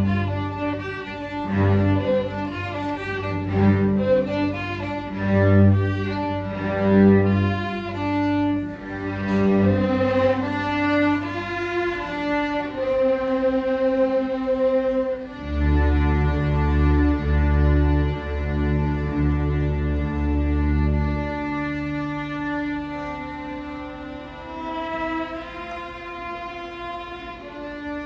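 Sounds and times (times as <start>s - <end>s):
sustained low bass notes: 0.0s - 27.0s.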